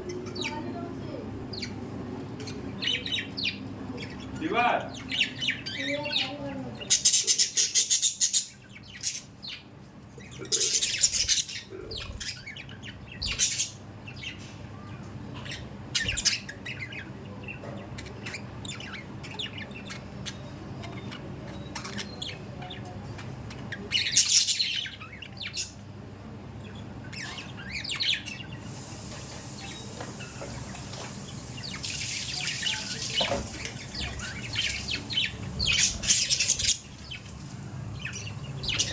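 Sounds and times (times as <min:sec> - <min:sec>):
loud harsh bird calls: 0:00.0 - 0:09.4, 0:10.2 - 0:17.3, 0:27.0 - 0:38.9
budgerigars chattering and chirping: 0:00.0 - 0:25.9, 0:26.6 - 0:38.9.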